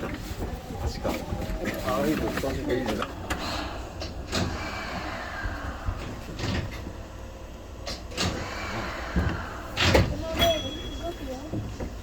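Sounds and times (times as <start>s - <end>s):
monorail car humming: 2.9s - 12.0s.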